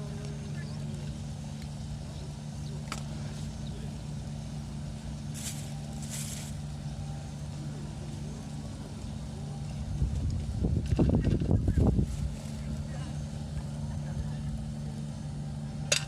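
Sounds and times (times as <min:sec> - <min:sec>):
low engine drone: 0:00.0 - 0:16.0.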